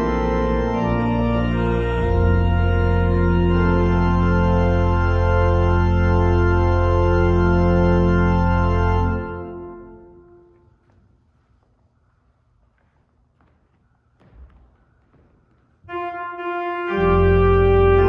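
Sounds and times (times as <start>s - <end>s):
deep organ bass note: 0.0s - 10.0s, 16.2s - 18.0s
organ playing sustained chords: 0.0s - 10.8s, 15.8s - 18.0s.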